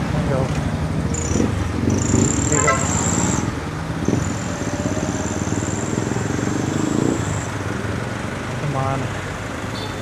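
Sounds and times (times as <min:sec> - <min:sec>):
street traffic: 0:00.0 - 0:10.0.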